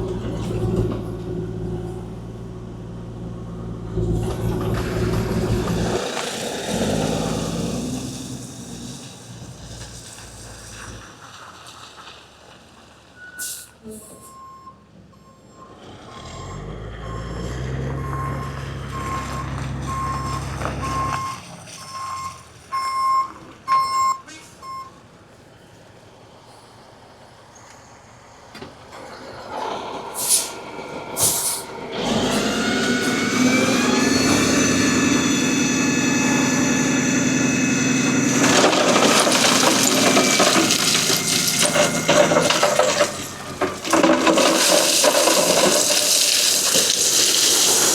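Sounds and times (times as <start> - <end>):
excavator diesel engine revving: 0.0 - 11.1, 15.2 - 23.1, 29.0 - 47.9
backup alarm beeping: 17.1 - 24.9.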